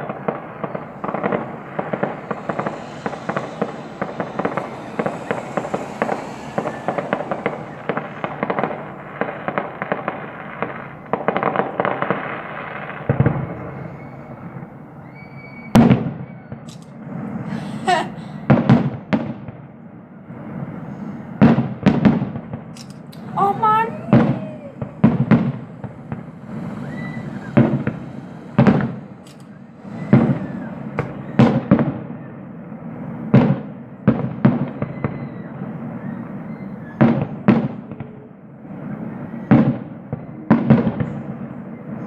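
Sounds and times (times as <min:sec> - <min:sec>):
fireworks crackling and banging: 0:00.0 - 0:42.0.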